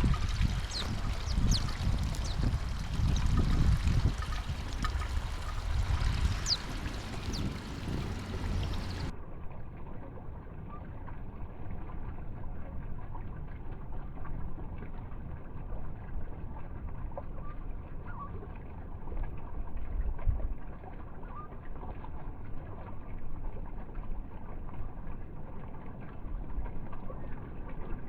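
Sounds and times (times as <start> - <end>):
rushing haze with low rumble: 0.0 - 9.1
bird chirps: 0.6 - 3.4, 4.8 - 9.1
dull hiss: 4.0 - 9.1.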